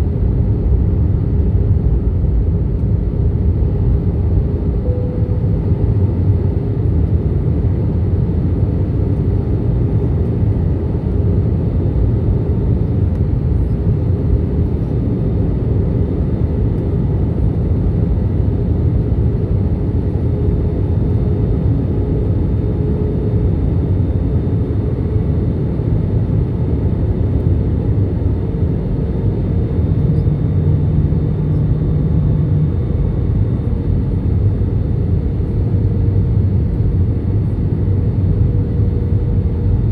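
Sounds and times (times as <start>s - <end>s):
airliner cabin rumble: 0.0s - 39.9s
faint constant hum: 0.0s - 39.9s
low tone: 3.7s - 7.4s.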